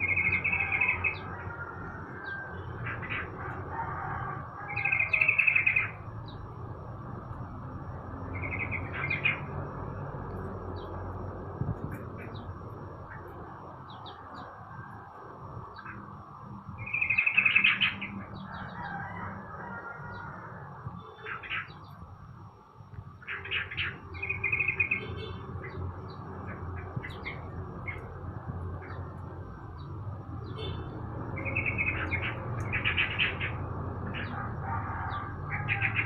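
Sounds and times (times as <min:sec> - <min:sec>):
songbirds chirping: 0:00.0 - 0:36.0
steady low hum: 0:05.8 - 0:18.6.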